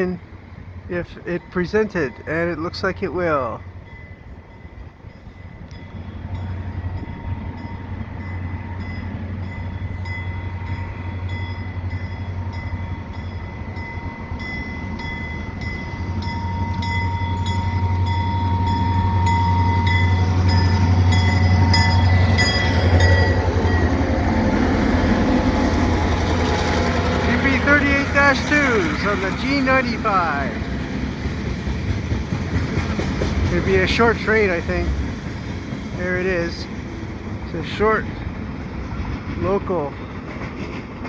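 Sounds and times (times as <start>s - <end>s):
locomotive engine drone: 0.0s - 41.0s
high ringing tone: 3.9s - 24.0s.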